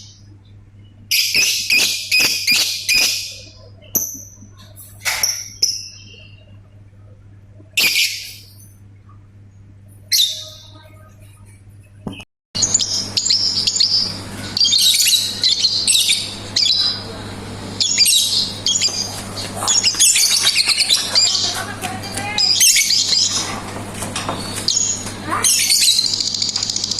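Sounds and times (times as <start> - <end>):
bird chattering song: 0.0 - 4.5, 12.6 - 26.9
lovebird calls: 1.1 - 4.3, 12.6 - 17.1, 17.7 - 23.6, 24.2 - 26.9.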